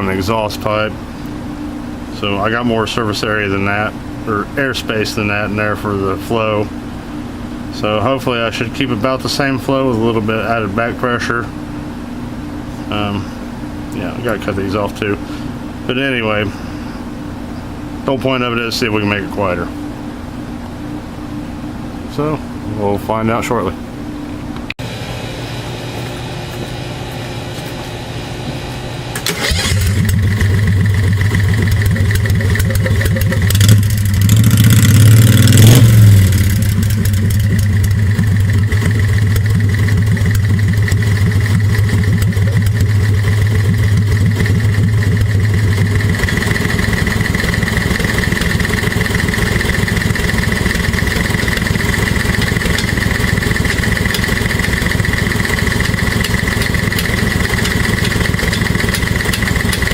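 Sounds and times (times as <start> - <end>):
golf cart engine starting and revving: 28.1 - 59.9.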